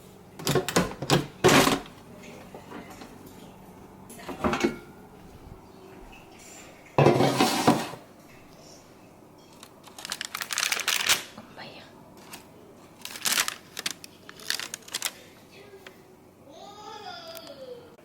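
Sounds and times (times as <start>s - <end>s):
dishes and utensils clattering: 0.4s - 5.0s, 6.1s - 8.4s.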